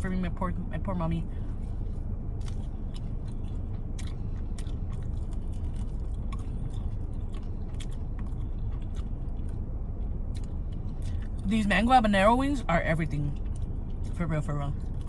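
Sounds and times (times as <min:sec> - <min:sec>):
air conditioning hum: 0:00.0 - 0:15.0
close-up chewing: 0:01.4 - 0:11.5, 0:13.1 - 0:15.0
wet mouth clicks and smacks: 0:02.4 - 0:11.4.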